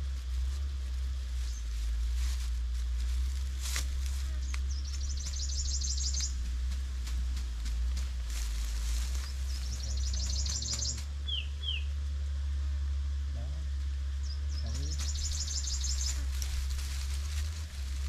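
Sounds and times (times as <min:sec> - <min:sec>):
songbirds trilling and chirping: 0:00.0 - 0:18.0
steady low rumble: 0:00.0 - 0:18.0
clicks and rustles: 0:16.0 - 0:18.0.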